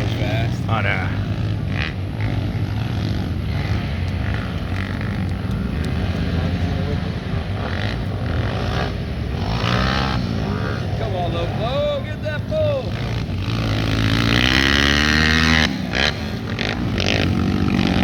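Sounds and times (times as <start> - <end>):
pit bike engines revving: 0.0 - 18.0.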